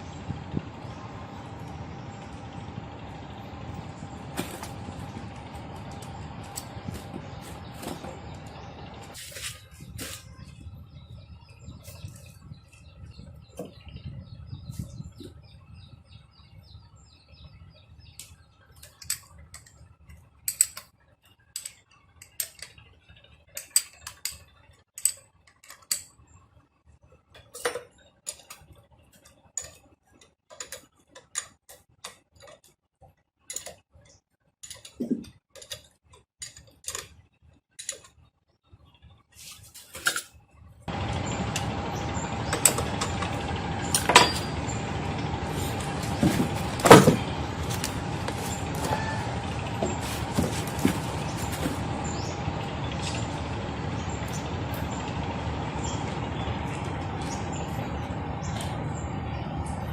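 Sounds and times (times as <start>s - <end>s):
low steady hum: 0.0s - 20.8s, 38.8s - 59.9s
metal tools clicking and tapping: 18.2s - 19.8s, 20.4s - 20.9s, 21.5s - 22.8s, 23.5s - 26.2s, 27.4s - 28.7s, 29.5s - 32.7s, 33.5s - 33.8s, 34.6s - 37.1s, 37.8s - 38.2s, 42.5s - 44.6s.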